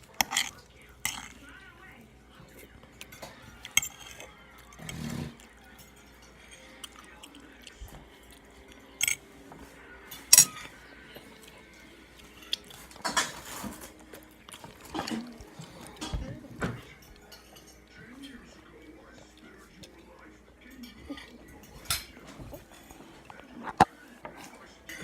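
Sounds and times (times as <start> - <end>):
utensil clinking against a dish: 0.0 - 1.6, 2.6 - 9.3, 10.1 - 11.6, 12.2 - 25.0
wet eating noises: 0.0 - 25.0.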